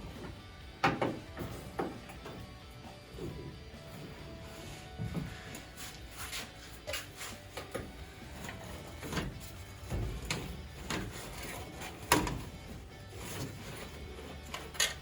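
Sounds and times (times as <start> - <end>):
irregular knocks and clatter: 7.6 - 15.0.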